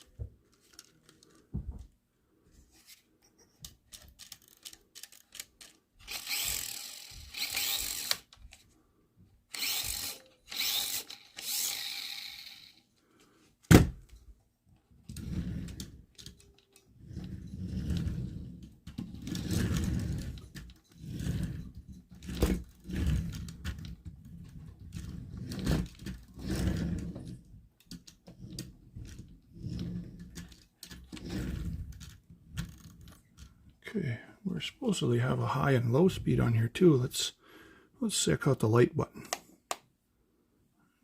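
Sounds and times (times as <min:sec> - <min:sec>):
toy car motor whirring: 0:03.6 - 0:08.6, 0:09.5 - 0:12.9, 0:15.1 - 0:24.0.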